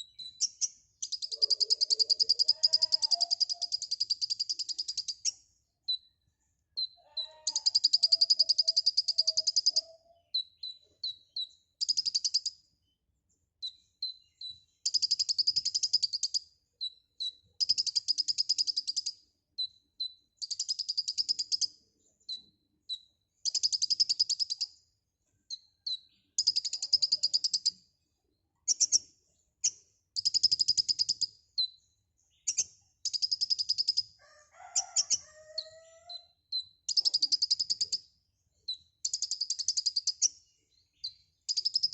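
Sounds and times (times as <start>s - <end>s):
bird buzzy trills: 0.0s - 5.4s
bird high chirps: 0.0s - 13.0s, 13.6s - 41.9s.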